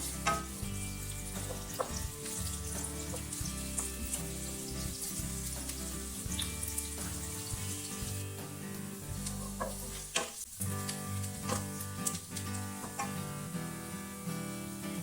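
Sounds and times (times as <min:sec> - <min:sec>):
utensil clicking against pan: 0:00.0 - 0:00.6, 0:01.4 - 0:04.1, 0:09.2 - 0:13.3
food sizzling in oil: 0:00.0 - 0:15.0.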